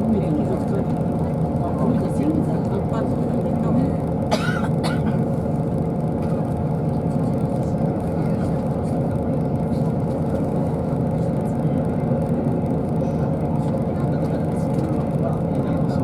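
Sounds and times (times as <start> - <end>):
bus engine drone inside cabin: 0.0 - 16.0.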